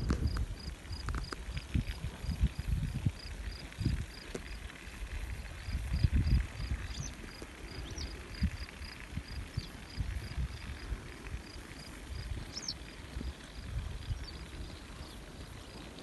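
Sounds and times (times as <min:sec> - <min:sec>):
low rumbles and thumps: 0:00.0 - 0:04.4.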